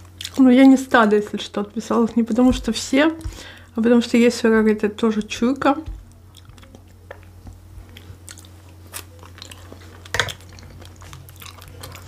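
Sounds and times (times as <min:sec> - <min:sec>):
chewing food: 0:00.0 - 0:00.8, 0:05.2 - 0:12.0.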